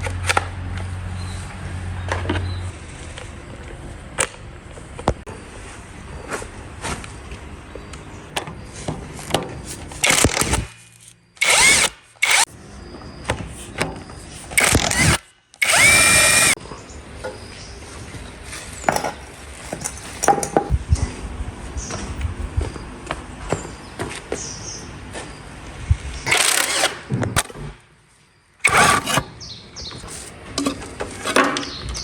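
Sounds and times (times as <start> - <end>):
small power tool whining: 10.0 - 10.8, 11.4 - 12.5, 14.5 - 16.6, 26.3 - 27.8, 28.6 - 29.3
handling clicks and knocks: 18.8 - 20.7, 29.8 - 32.0.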